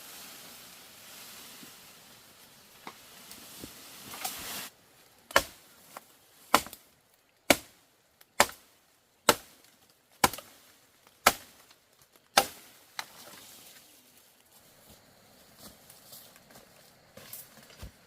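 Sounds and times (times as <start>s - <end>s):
blade chopping into wood: 6.5s - 6.8s, 7.5s - 7.8s, 10.2s - 10.5s, 11.2s - 11.6s, 12.3s - 12.7s.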